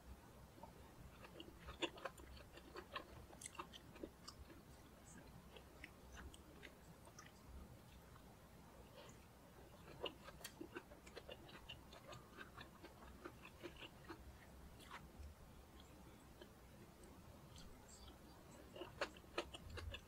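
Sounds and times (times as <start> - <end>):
crunchy chewing: 1.0 - 8.2, 8.9 - 20.0.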